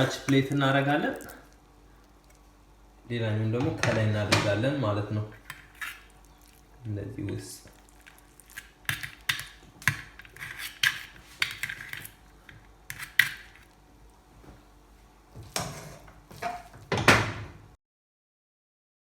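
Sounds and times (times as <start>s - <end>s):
spoon scraping dishes: 5.3s - 6.6s, 8.1s - 12.2s.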